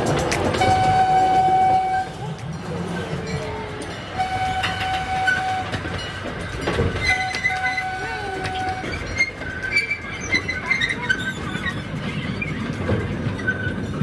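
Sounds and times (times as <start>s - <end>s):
busy background noise: 0.0s - 14.0s
horn tooting: 0.6s - 2.2s, 4.2s - 5.8s, 7.0s - 9.0s.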